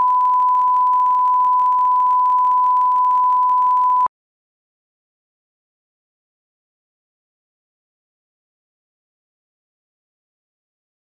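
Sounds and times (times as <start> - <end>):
pure test tone beep: 0.0 - 4.1.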